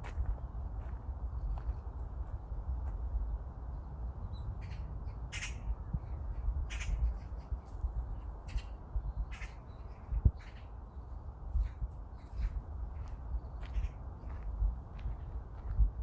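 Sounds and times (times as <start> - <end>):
wind rumble on microphone: 0.0 - 16.0
crow calling: 4.6 - 5.7, 6.7 - 7.1, 9.3 - 10.7.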